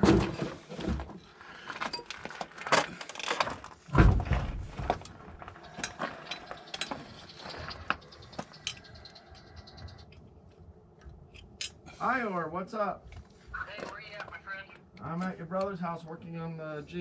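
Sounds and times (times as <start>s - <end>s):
tools clinking on metal: 5.4s - 9.7s, 11.3s - 11.9s.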